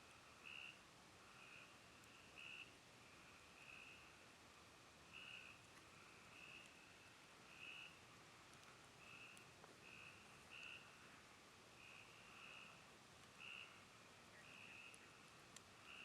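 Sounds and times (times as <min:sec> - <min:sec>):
campfire crackles: 0:00.0 - 0:16.0
frogs trilling: 0:13.4 - 0:13.8.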